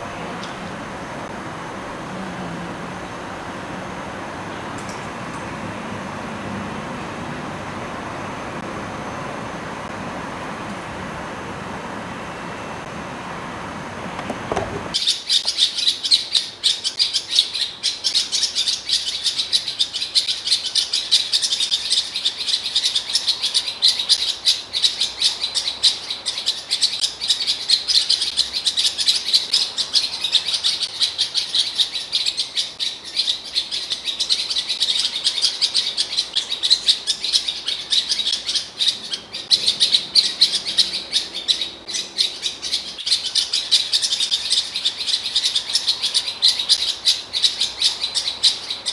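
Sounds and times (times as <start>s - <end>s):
bird singing fast warble: 14.9s - 48.9s.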